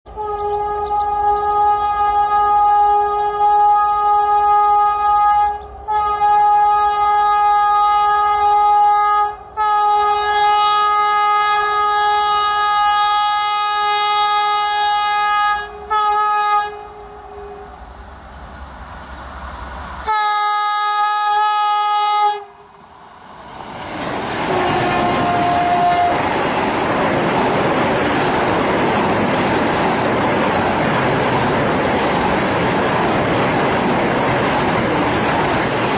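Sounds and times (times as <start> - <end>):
train horn blasts: 0.1 - 17.9, 20.0 - 22.7, 24.4 - 26.4
train wheel and rail noise: 0.1 - 35.9.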